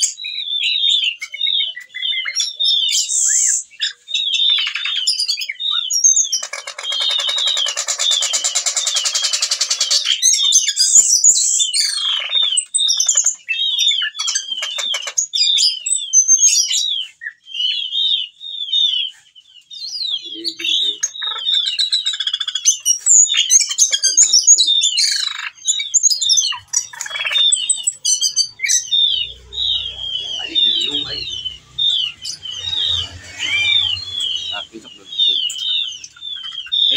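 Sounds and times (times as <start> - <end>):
thrush singing chirps and twitters: 0.0 - 36.9.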